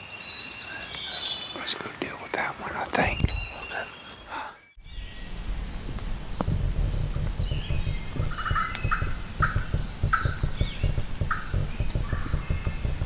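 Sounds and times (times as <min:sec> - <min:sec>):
low rumbling flutter: 0:04.8 - 0:13.0
turkey gobbling: 0:08.2 - 0:12.8.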